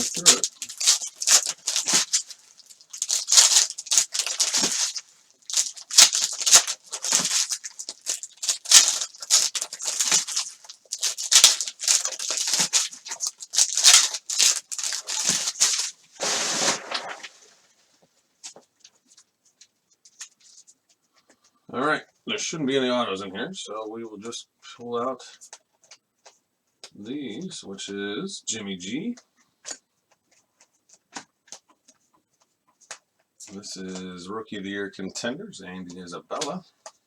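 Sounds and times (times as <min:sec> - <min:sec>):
card packs rustling and crinkling: 0:00.0 - 0:17.8.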